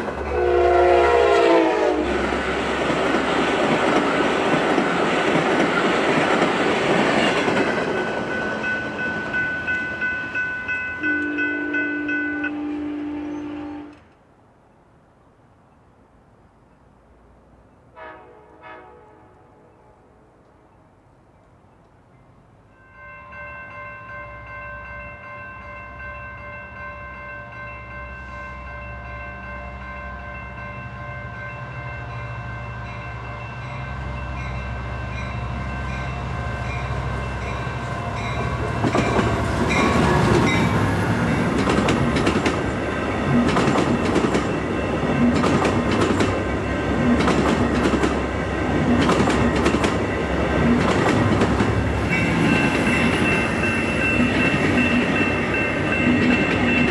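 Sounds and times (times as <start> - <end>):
train engine rumble: 0.0 - 12.9, 24.4 - 56.9
train passing with loud rush: 0.0 - 56.9
wheels clacking over rail joints: 2.3 - 10.8, 38.2 - 56.9.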